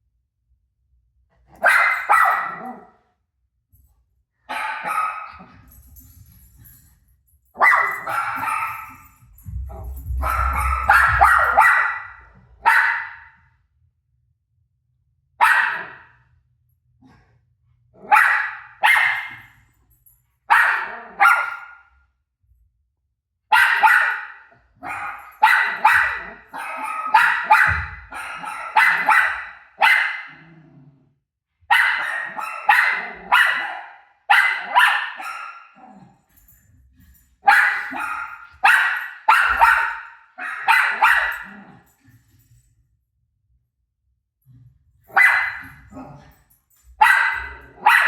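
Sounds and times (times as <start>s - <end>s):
dog barking: 1.5s - 3.0s, 4.5s - 5.6s, 7.6s - 13.4s, 15.4s - 16.2s, 18.0s - 19.5s, 20.5s - 21.9s, 23.5s - 30.4s, 31.7s - 36.1s, 37.4s - 41.8s, 45.1s - 46.3s, 47.0s - 48.0s.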